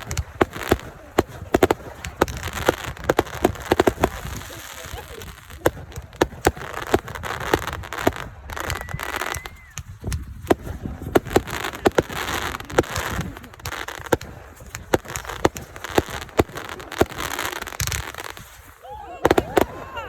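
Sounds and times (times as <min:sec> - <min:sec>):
fireworks crackle: 0:00.0 - 0:20.0
fireworks popping: 0:00.0 - 0:20.0
firework whistle: 0:08.5 - 0:10.2.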